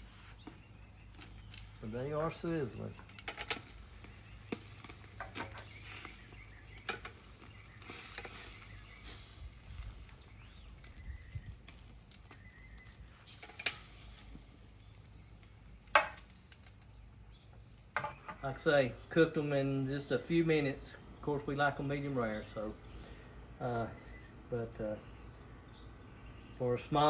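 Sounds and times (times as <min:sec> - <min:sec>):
steaks sizzling: 0:00.0 - 0:16.8.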